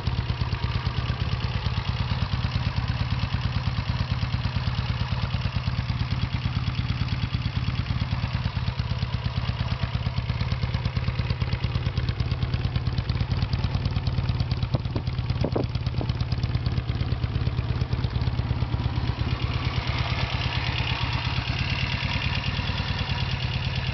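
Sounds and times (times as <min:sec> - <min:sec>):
motorcycle engine idling: 0:00.0 - 0:23.9
engine mechanical clatter: 0:12.8 - 0:23.9.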